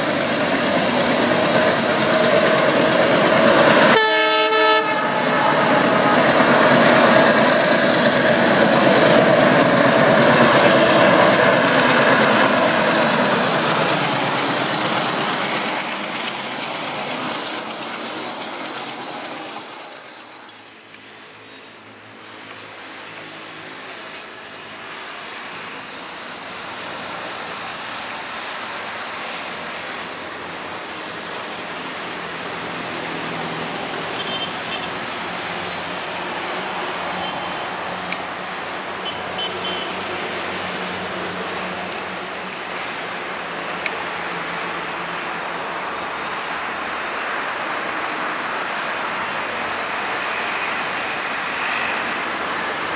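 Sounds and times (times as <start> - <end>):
diesel locomotive passing: 0.0 - 52.9
low train rumble: 0.0 - 52.9.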